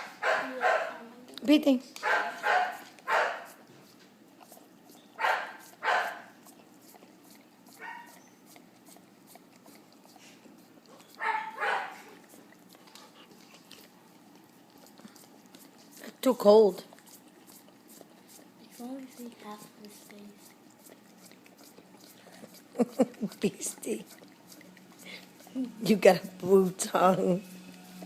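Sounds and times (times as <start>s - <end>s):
dog barking: 0.0s - 1.0s, 2.0s - 3.6s, 5.2s - 6.3s, 7.8s - 8.2s, 11.2s - 12.1s.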